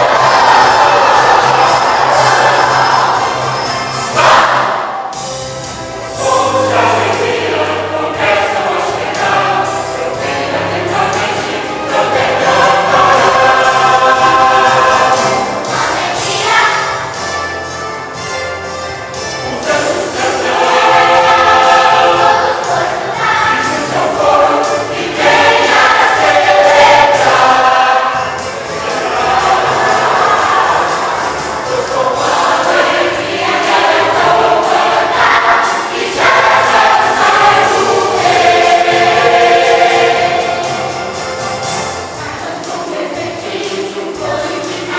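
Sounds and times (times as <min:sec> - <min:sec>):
church choir singing: 0:00.0 - 0:05.3, 0:05.9 - 0:44.9
instrumental accompaniment: 0:00.0 - 0:44.9.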